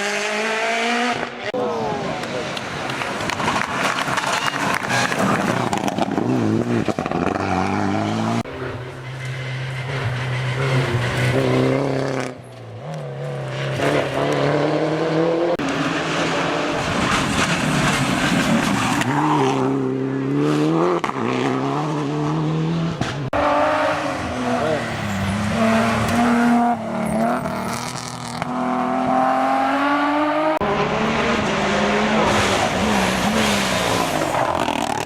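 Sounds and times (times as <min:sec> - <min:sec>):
rally car engine at full throttle: 0:00.0 - 0:35.0.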